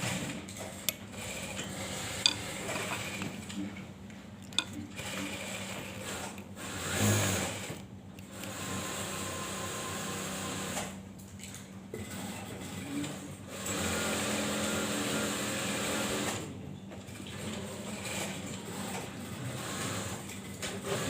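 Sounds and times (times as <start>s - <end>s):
sewing machine stitching: 0.0s - 3.5s, 4.5s - 10.9s.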